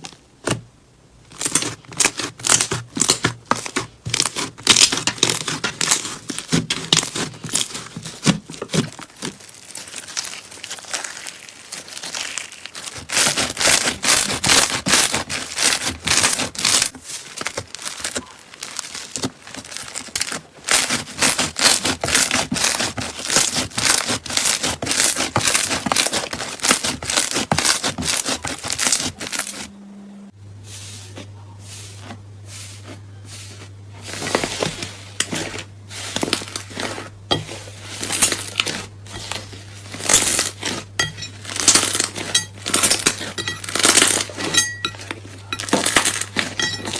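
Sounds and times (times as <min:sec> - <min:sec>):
slime crackling and popping: 0:08.8 - 0:29.5.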